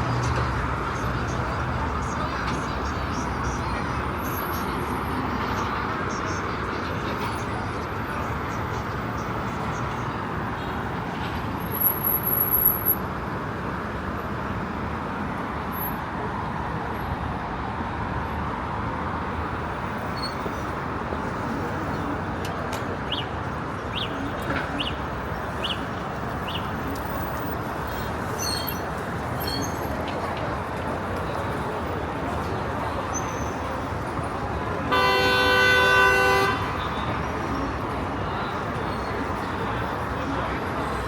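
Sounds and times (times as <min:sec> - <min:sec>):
street traffic noise: 0:00.0 - 0:41.0
small birds chirping: 0:25.6 - 0:25.8, 0:26.4 - 0:26.7.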